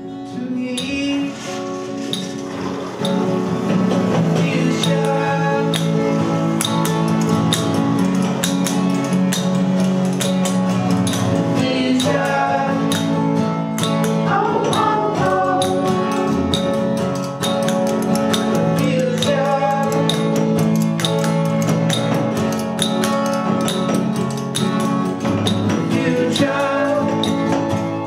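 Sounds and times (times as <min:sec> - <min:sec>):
person singing: 0:00.0 - 0:02.3, 0:04.1 - 0:06.9, 0:11.4 - 0:17.0, 0:18.4 - 0:20.8, 0:25.7 - 0:28.0
guitar strumming chords: 0:00.0 - 0:28.0
percussion beat: 0:00.8 - 0:28.0.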